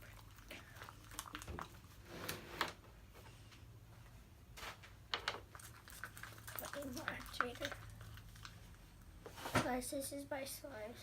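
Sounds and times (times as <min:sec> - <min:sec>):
slime squelching in a bowl: 0:00.0 - 0:02.0, 0:05.4 - 0:09.2.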